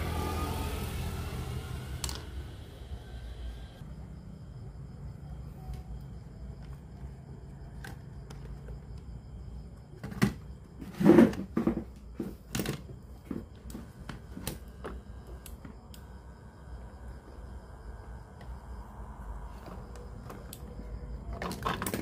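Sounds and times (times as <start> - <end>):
low hum: 0.0 - 5.1.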